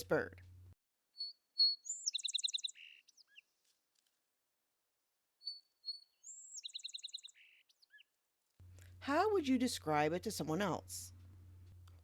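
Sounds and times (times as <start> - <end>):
bird singing: 1.1 - 3.6, 5.4 - 8.2.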